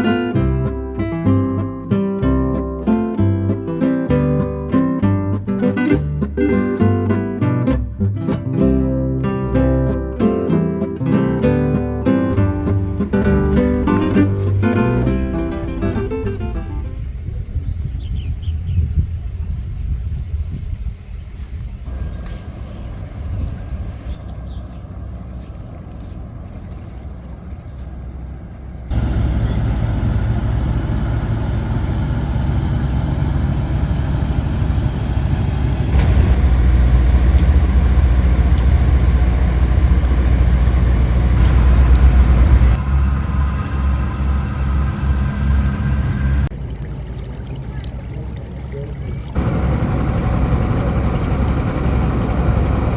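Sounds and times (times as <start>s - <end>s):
vehicle engine and road rumble: 11.2s - 52.9s.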